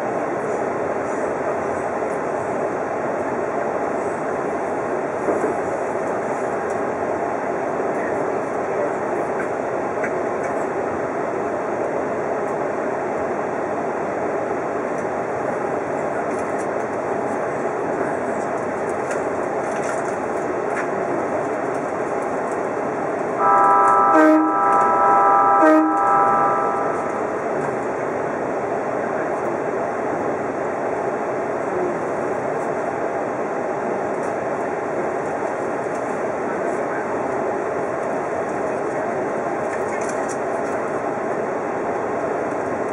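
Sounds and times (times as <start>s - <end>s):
train wheels rumbling on rail: 0.0s - 42.9s
loud sustained multi-pitch tone: 23.4s - 27.5s.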